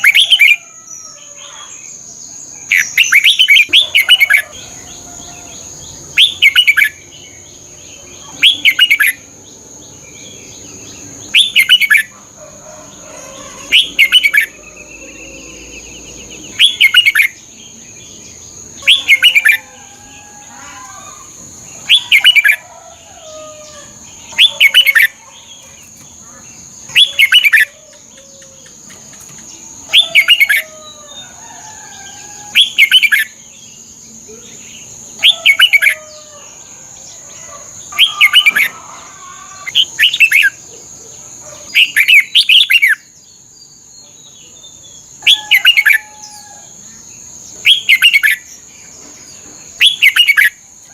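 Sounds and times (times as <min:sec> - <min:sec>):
bird singing bright phrases: 0:00.0 - 0:12.2, 0:13.2 - 0:22.7, 0:41.7 - 0:50.7
faint chirps of other birds: 0:00.0 - 0:50.9.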